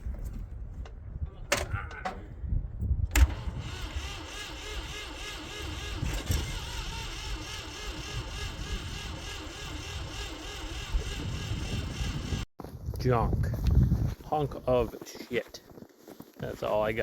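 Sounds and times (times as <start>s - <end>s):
engine cranking without starting: 3.1s - 12.5s.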